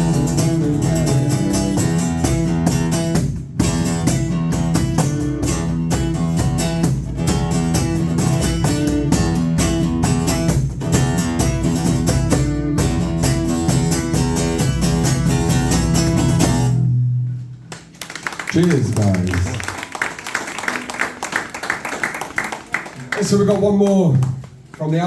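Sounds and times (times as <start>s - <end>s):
live band instrumental music: 0.0s - 17.7s.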